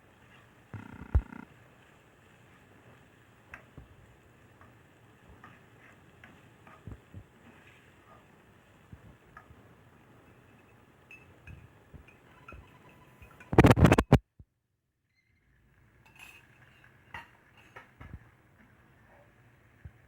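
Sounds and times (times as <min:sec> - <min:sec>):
utensils clinking on dishes: 0:10.6 - 0:13.6, 0:16.0 - 0:18.0.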